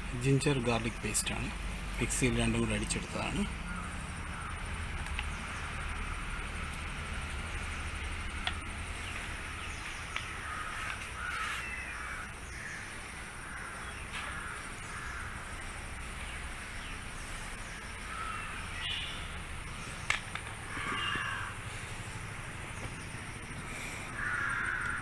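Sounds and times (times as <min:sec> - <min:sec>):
crows cawing: 0:03.2 - 0:06.7, 0:09.0 - 0:15.7, 0:18.0 - 0:19.8, 0:20.6 - 0:22.0, 0:23.7 - 0:25.0
sharp clicks: 0:04.9 - 0:05.7, 0:08.2 - 0:11.2, 0:19.8 - 0:21.2.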